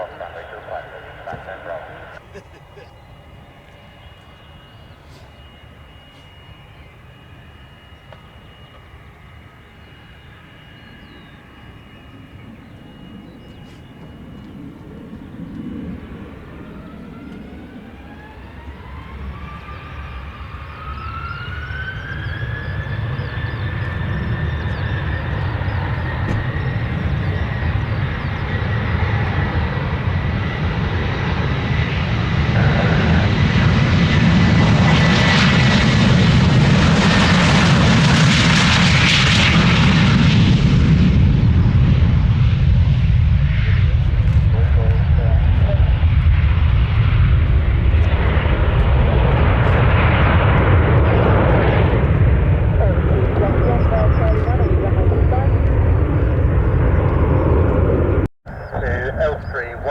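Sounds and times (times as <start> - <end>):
jet engines spooling up: 0.0 - 59.9.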